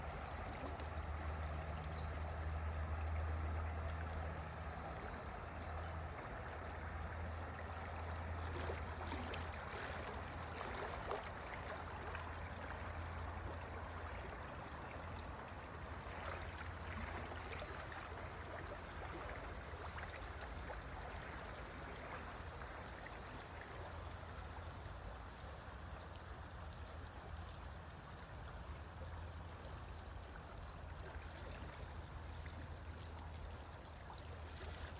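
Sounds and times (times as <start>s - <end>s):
constant low rumble: 0.0s - 34.9s
stream gurgling: 0.0s - 34.9s.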